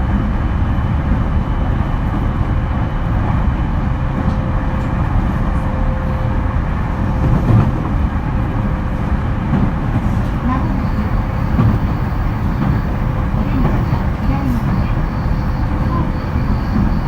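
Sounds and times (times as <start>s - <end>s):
train wheels rumbling on rails: 0.0s - 17.0s
faint steady whine: 10.2s - 17.0s.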